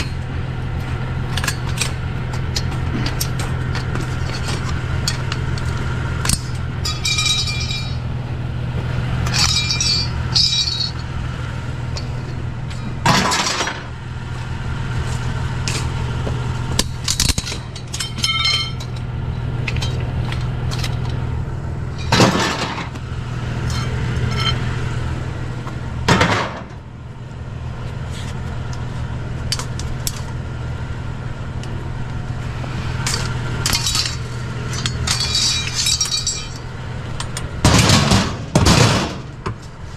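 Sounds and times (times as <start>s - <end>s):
steady low hum: 0.0s - 39.9s
hard objects clinking and clattering: 2.6s - 8.0s, 9.2s - 11.1s, 16.8s - 21.2s, 33.0s - 38.8s.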